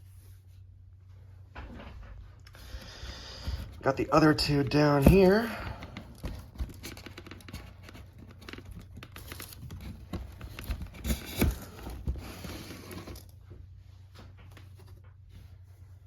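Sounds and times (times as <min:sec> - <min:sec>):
packaging rustling and crinkling: 0:02.6 - 0:13.4.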